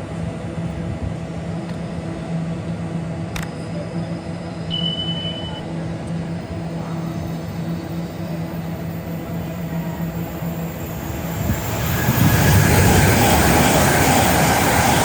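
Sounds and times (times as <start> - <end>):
train humming: 0.0 - 15.0
short high beep: 4.7 - 5.7.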